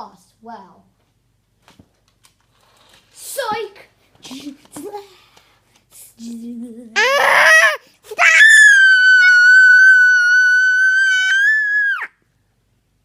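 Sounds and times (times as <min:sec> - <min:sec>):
girl screaming: 0:07.0 - 0:12.2.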